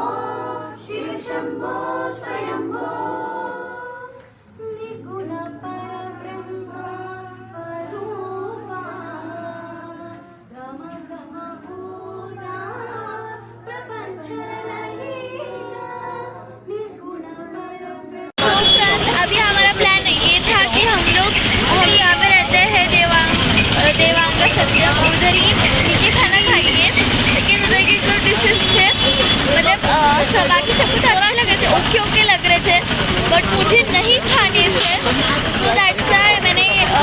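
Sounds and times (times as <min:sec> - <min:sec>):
voices singing melodic lines: 0:18.4 - 0:37.0.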